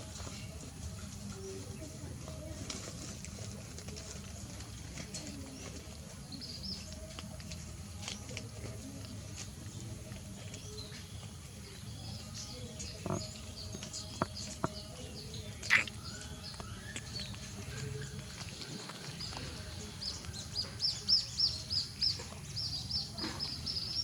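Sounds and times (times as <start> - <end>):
low background noise: 0.0 - 24.0
high animal chirps: 15.6 - 17.2.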